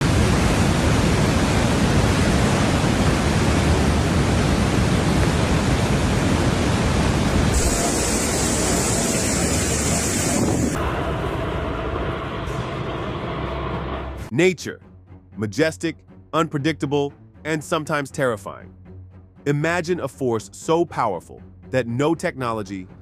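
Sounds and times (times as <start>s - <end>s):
loud steady rushing noise: 0.0s - 14.3s
bright hiss: 7.3s - 12.9s.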